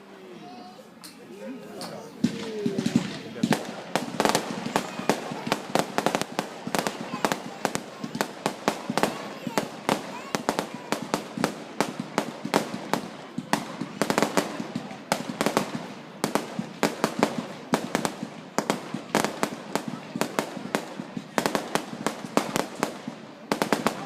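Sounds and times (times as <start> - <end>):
fireworks bangs and cracks: 2.0 - 24.0.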